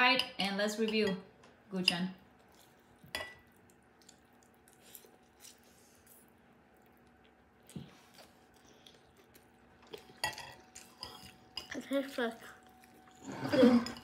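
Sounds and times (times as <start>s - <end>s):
faint chewing of noodles: 2.3s - 11.6s.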